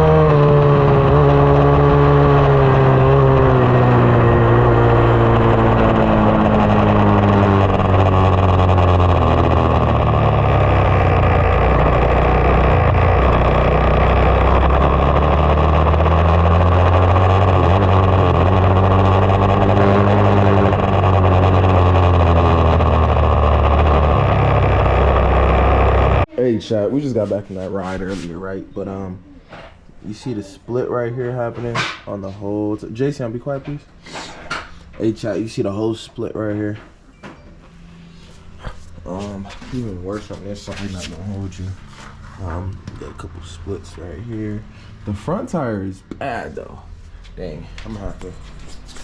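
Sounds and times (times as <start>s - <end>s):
dirt bike engine running: 0.0s - 26.3s.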